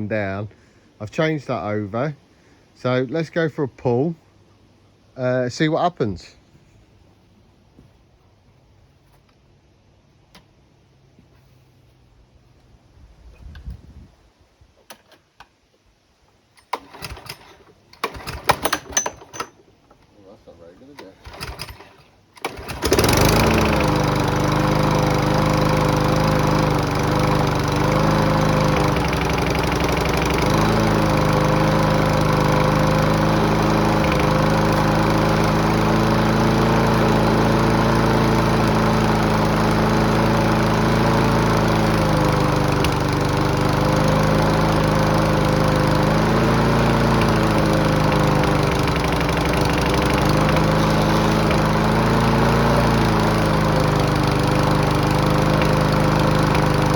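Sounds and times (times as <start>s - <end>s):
lawnmower engine running: 16.6s - 19.6s, 20.8s - 56.9s.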